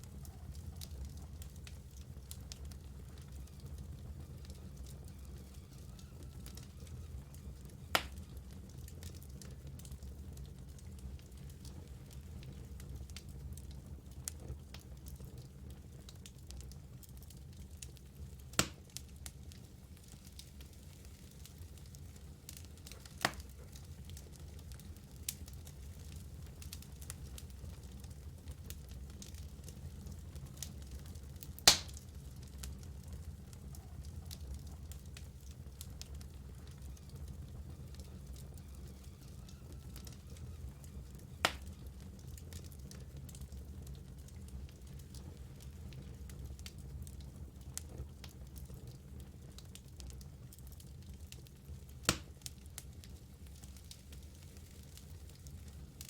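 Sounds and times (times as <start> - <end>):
fire burning in fireplace: 0.0 - 56.0
wood crackling: 0.0 - 56.0
loud sharp pop: 31.7 - 32.0.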